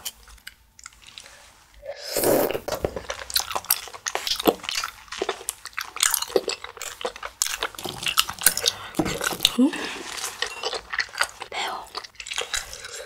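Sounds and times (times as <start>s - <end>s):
wet chewing with mouth clicks: 2.8s - 13.0s.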